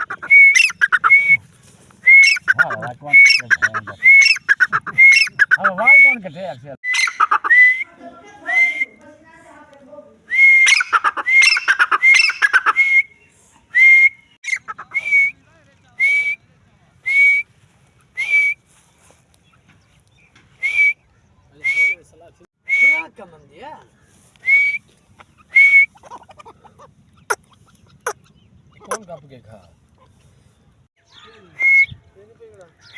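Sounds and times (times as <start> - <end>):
francolin whistled calls: 0.0 - 1.4, 2.0 - 7.9, 10.3 - 15.4, 24.4 - 26.1.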